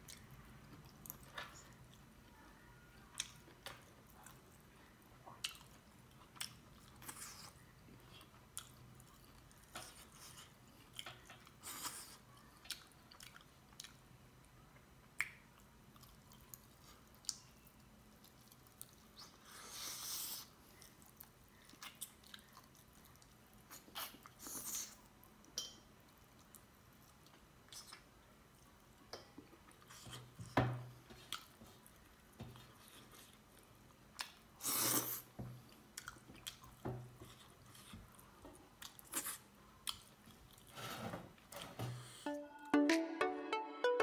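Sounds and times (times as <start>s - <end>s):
chewing and lip smacks: 3.1s - 14.0s, 20.4s - 30.3s, 31.2s - 40.7s.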